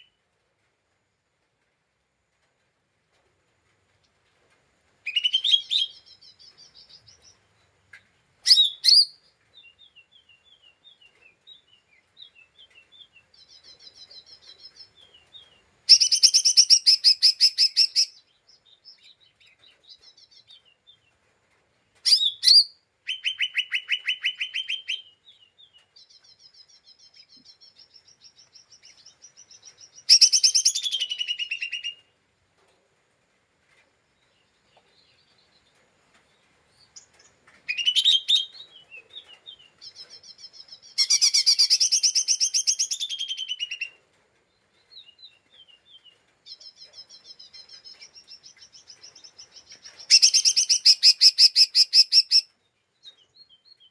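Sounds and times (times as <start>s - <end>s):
bird singing rapid trills: 26.0s - 32.0s, 36.8s - 44.0s, 46.5s - 52.5s.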